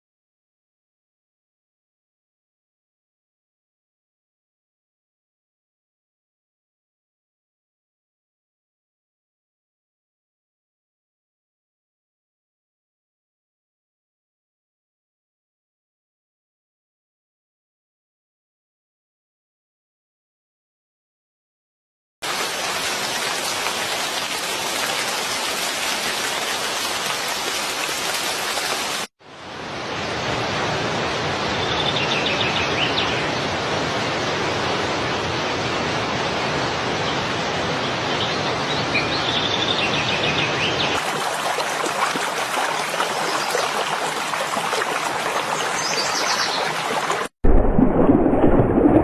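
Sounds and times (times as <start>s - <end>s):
stream water rushing: 22.2s - 47.3s.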